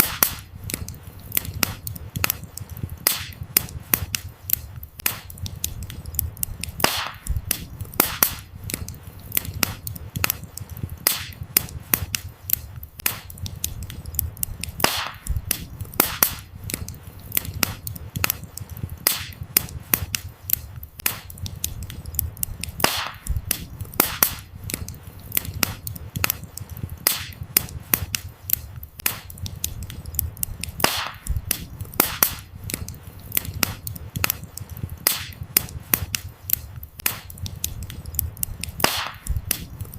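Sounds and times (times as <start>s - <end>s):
firewood crackling and popping: 0.0s - 39.9s
low rumble of flames: 0.0s - 39.9s.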